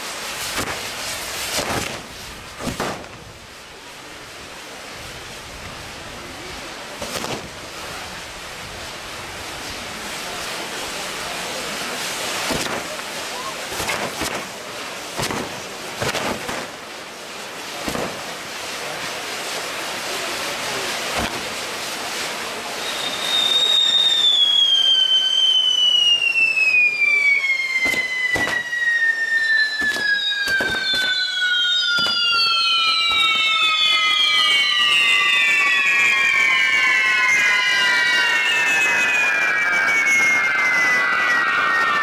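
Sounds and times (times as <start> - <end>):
fireworks cracks and pops: 0.0 - 3.6, 6.9 - 8.0, 11.8 - 26.6, 27.2 - 37.5
falling firework whistles: 0.0 - 42.0
fireworks fountains hissing: 0.0 - 42.0.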